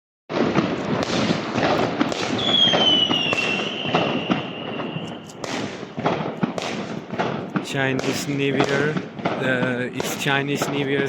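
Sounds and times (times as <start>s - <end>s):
firecrackers crackling: 0.3s - 11.0s
high firework whistle: 0.5s - 5.9s.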